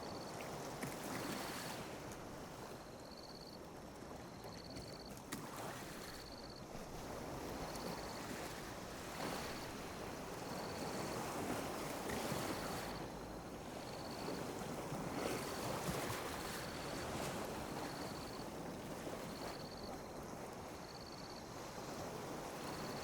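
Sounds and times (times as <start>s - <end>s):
small waves lapping on beach: 0.0s - 23.0s.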